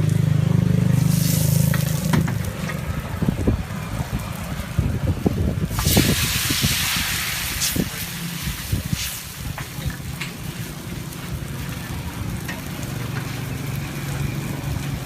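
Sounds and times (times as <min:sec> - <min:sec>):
loud hissing burst: 0:01.0 - 0:02.0, 0:05.7 - 0:09.5.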